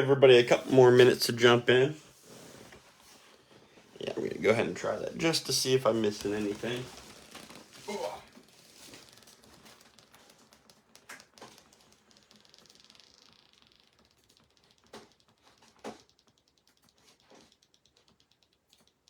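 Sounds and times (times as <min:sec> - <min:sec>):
typing on computer keyboard: 0:08.3 - 0:19.0.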